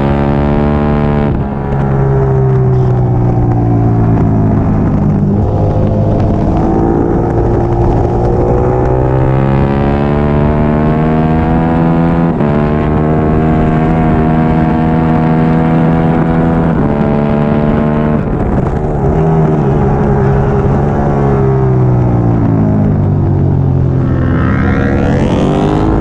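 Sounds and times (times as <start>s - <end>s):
motorcycle engine revving hard: 4.5s - 21.1s, 24.0s - 26.0s.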